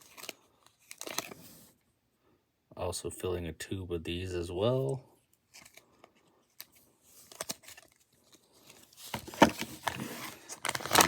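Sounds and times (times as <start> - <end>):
packaging crinkling and rustling: 0.0 - 1.7, 5.5 - 11.0.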